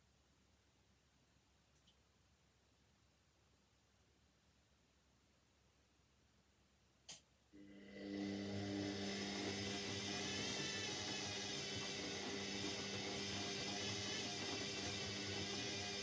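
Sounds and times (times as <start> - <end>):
washing machine running with hiss: 7.6 - 16.0.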